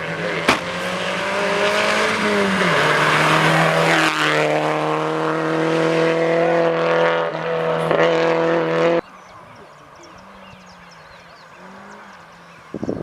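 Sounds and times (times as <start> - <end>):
rally car engine running hard: 0.0 - 9.3.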